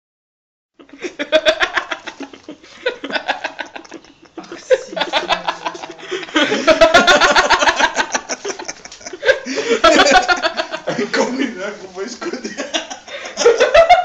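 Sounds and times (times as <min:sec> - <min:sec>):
people laughing: 0:00.8 - 0:14.0
people talking: 0:03.9 - 0:13.6.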